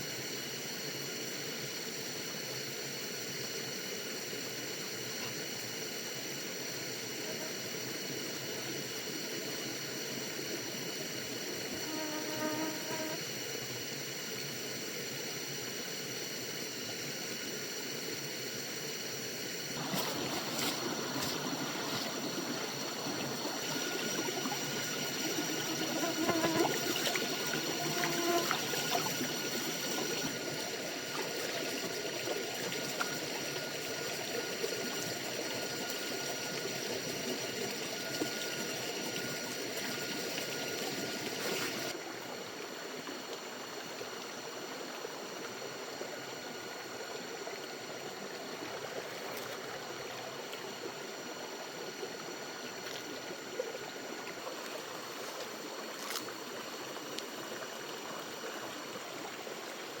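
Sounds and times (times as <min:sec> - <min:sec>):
stream water rushing: 0:19.8 - 1:00.0.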